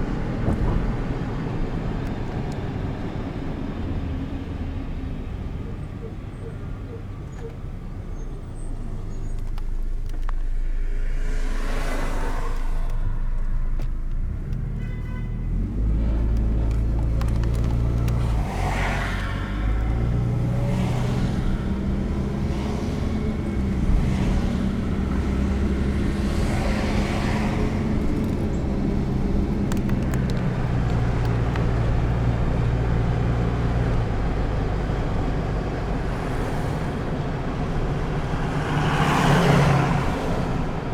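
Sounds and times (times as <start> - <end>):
car engine humming: 0.0 - 40.9
road noise: 0.0 - 40.9
vehicle passing: 9.7 - 14.8, 15.4 - 40.9.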